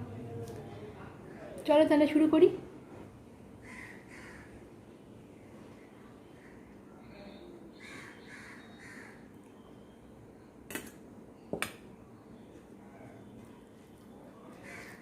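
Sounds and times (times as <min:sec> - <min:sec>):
crow cawing: 0:03.6 - 0:04.6, 0:07.8 - 0:09.3, 0:14.6 - 0:15.0.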